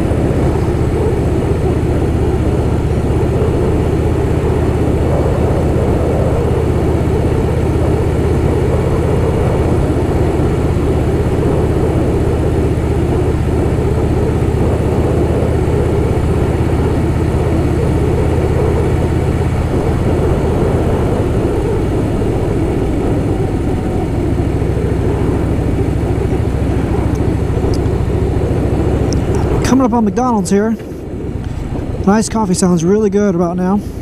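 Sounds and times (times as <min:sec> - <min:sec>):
motorcycle engine running: 0:00.0 - 0:34.0
wind rush over microphone: 0:00.0 - 0:34.0.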